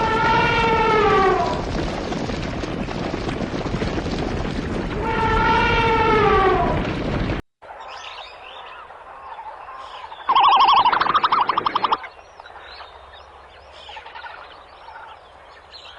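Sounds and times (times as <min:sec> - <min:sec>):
farm animal calling: 0:08.7 - 0:12.1.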